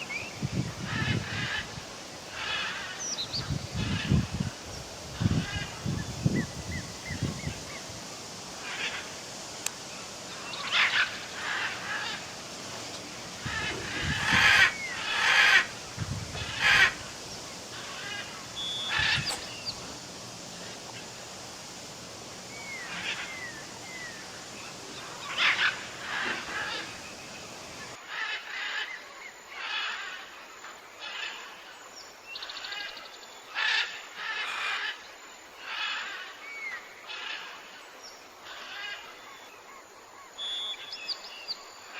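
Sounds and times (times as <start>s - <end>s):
waterfowl calling: 5.2s - 28.4s.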